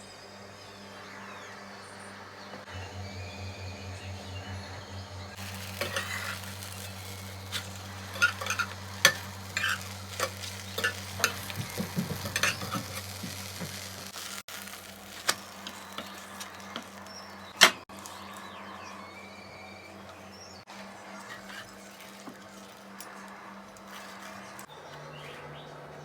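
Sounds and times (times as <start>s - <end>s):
low hum: 0.5s - 21.1s
food sizzling in a pan: 5.3s - 18.6s, 21.2s - 23.0s
utensil scraping a pan: 5.4s - 17.8s, 21.2s - 23.0s.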